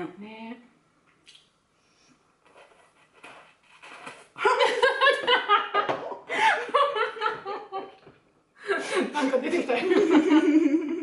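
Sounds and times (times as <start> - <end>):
hearty laughter: 4.5 - 8.1, 8.7 - 11.0.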